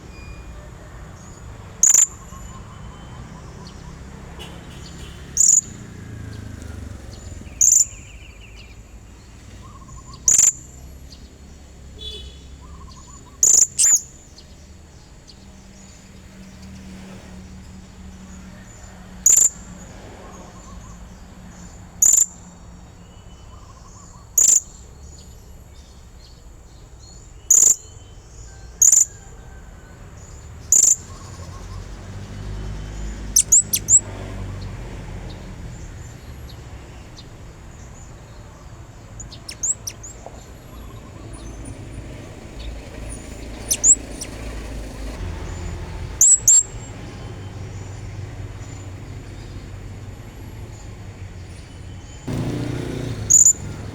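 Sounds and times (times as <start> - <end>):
parrot high-pitched calls: 1.8 - 2.6, 10.3 - 10.6, 12.8 - 14.1, 33.3 - 34.1, 39.2 - 40.1, 43.6 - 44.4, 46.2 - 46.8.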